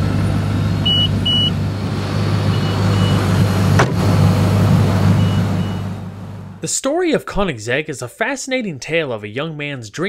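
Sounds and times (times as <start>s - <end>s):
car engine idling: 0.0s - 6.6s.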